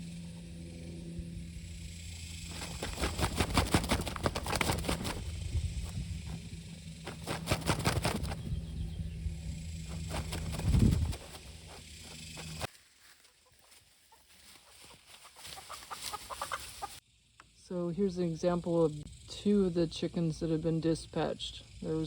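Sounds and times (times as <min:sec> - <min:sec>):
steady low hum: 0:00.0 - 0:13.3, 0:16.2 - 0:22.0
chicken flapping wings: 0:02.4 - 0:08.7, 0:09.8 - 0:12.7, 0:13.4 - 0:17.0.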